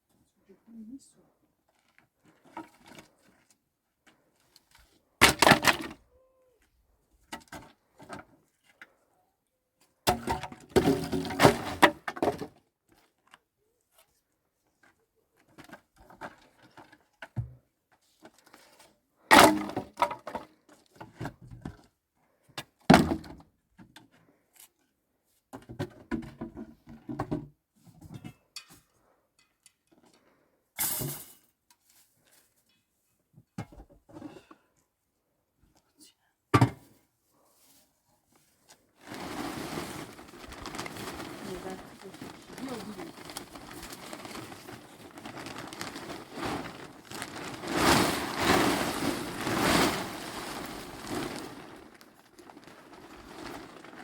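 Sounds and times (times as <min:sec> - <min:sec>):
wooden boards thunking and cracking: 0:05.2 - 0:06.0, 0:10.1 - 0:12.5, 0:19.3 - 0:20.4.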